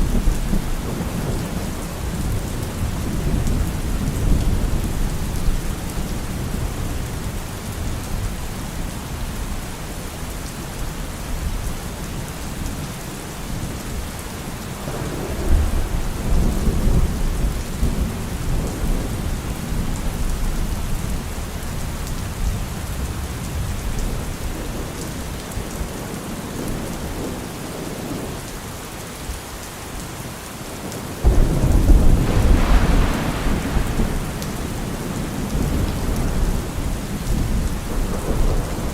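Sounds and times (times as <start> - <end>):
steady rainfall: 0.0 - 38.9
thunder rumbling: 14.9 - 19.3, 31.2 - 38.9
thunderclap: 31.2 - 38.9.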